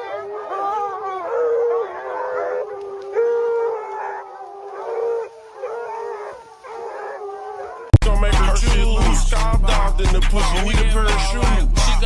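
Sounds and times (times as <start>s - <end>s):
long held howling wails: 0.0s - 7.9s.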